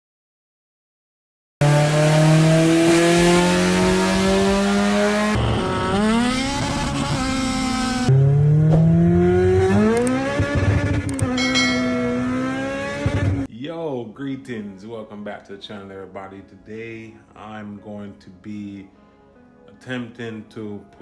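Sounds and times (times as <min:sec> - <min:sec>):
car engine accelerating hard: 0:01.6 - 0:13.5.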